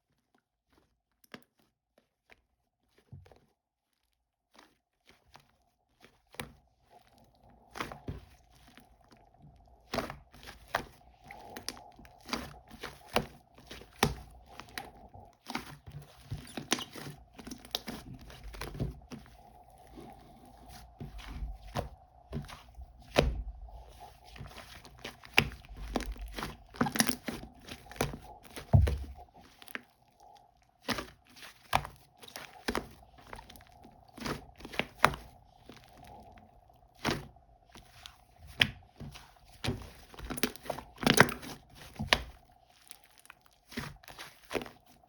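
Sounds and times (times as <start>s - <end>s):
faint steady hum: 6.4s - 45.0s
slime popping and crackling: 9.7s - 36.3s, 36.9s - 45.0s.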